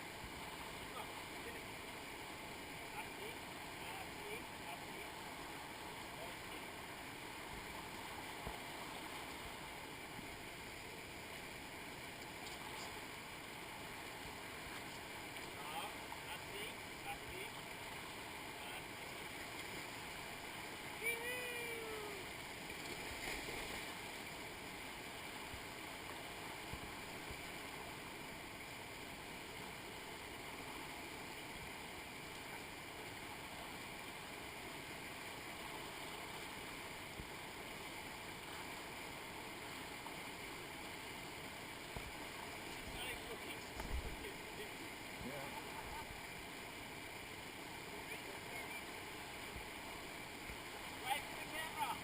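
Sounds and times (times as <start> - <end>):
river rapids rushing: 0.0 - 28.4, 42.1 - 52.0
person calling out: 21.0 - 22.2.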